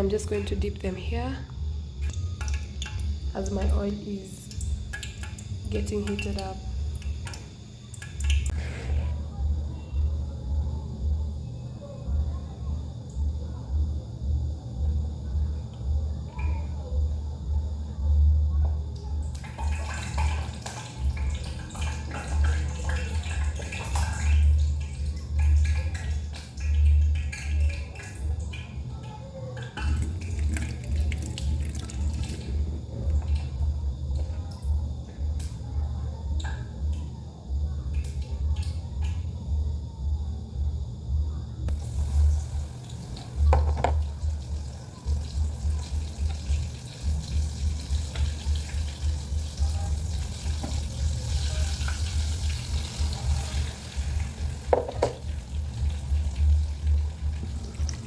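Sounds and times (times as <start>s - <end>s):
food deep-frying in oil: 2.0s - 8.6s, 18.8s - 34.2s, 41.7s - 58.0s
liquid dripping: 2.0s - 8.6s, 18.9s - 35.6s, 41.7s - 58.0s
pulsing bass music: 54.6s - 58.0s.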